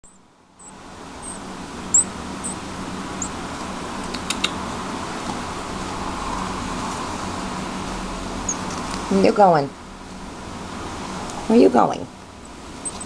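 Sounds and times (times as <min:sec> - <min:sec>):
fan hum: 0:00.0 - 0:13.0
baby bird begging chirps: 0:00.6 - 0:02.6, 0:03.2 - 0:03.4
sharp little clicks: 0:04.0 - 0:04.6.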